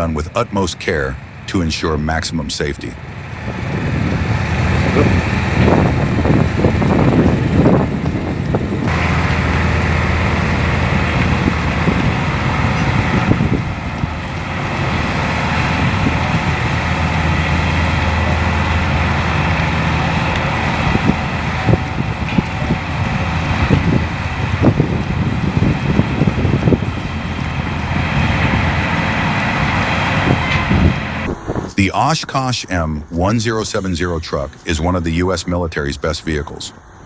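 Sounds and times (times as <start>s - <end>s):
heavy truck engine running: 0.0s - 31.8s.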